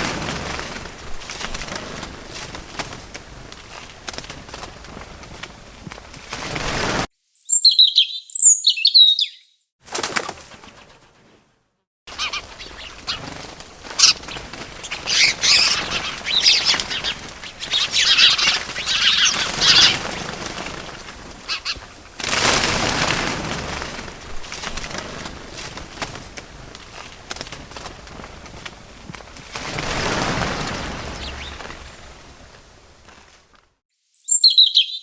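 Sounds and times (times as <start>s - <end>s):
rustling: 0.0s - 7.1s, 12.1s - 33.8s
wings flapping: 0.0s - 7.1s, 9.8s - 11.5s, 12.1s - 33.8s
small birds chirping: 7.2s - 9.7s, 12.1s - 22.1s, 30.0s - 32.5s, 34.0s - 35.0s.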